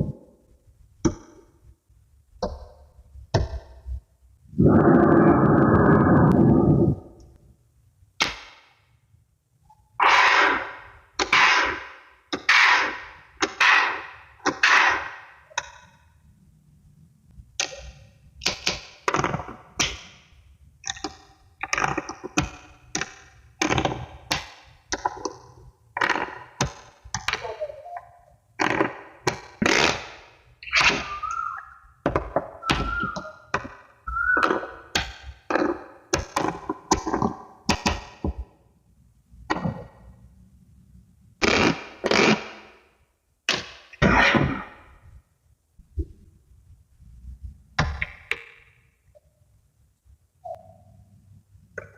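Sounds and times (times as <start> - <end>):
magnetic balls clicking together: 20.8 - 38.4.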